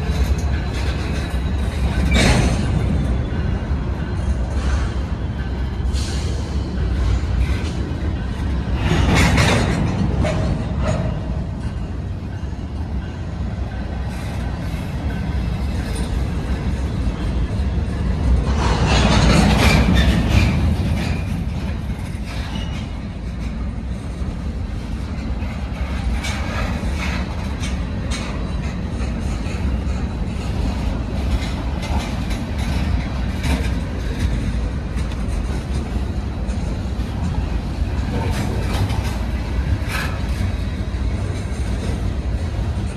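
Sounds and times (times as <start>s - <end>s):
train rolling past: 0.0s - 42.9s
wheels clicking over rail joints: 13.9s - 42.9s.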